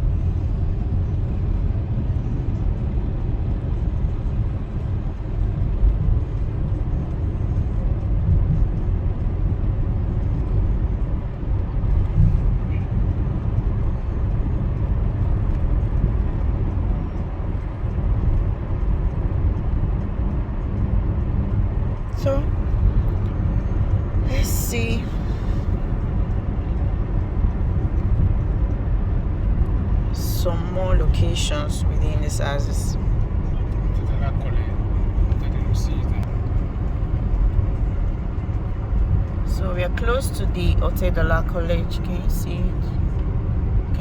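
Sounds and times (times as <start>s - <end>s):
car engine and road noise: 0.0s - 44.0s.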